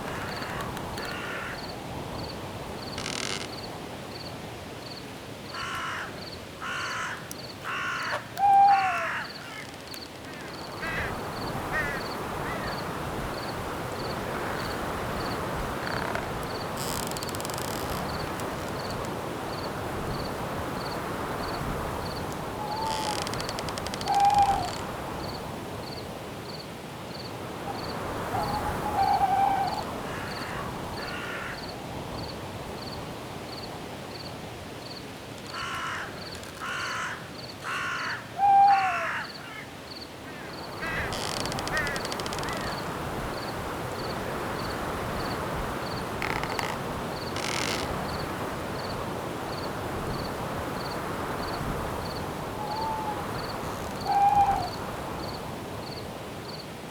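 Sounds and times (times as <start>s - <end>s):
cricket chirping: 0.0s - 36.6s, 39.2s - 56.6s
wind rustling through branches: 0.0s - 56.9s
owl hooting: 7.7s - 9.6s, 22.6s - 23.2s, 24.0s - 24.8s, 27.7s - 30.0s, 37.8s - 39.2s, 52.5s - 53.4s, 54.0s - 54.8s
harsh bird calls: 7.7s - 12.8s.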